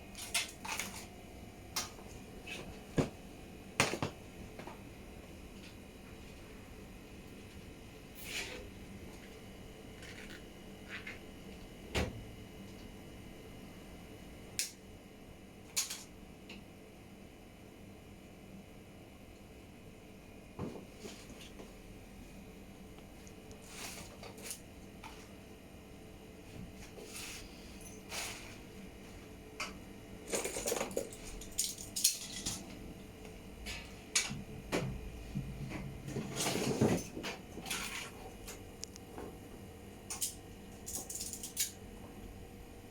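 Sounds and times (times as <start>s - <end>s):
faint steady hum: 0.0s - 42.9s
small metal and plastic parts clinking: 40.1s - 41.8s.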